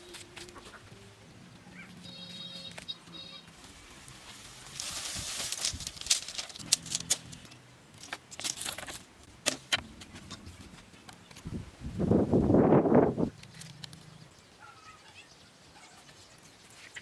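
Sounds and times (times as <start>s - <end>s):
scraping: 4.0s - 9.1s.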